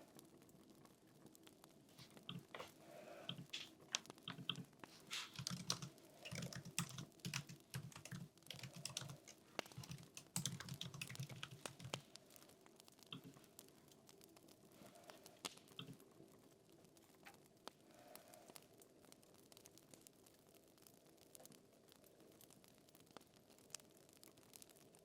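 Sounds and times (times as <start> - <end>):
computer keyboard typing: 3.3 - 12.0, 15.8 - 16.0.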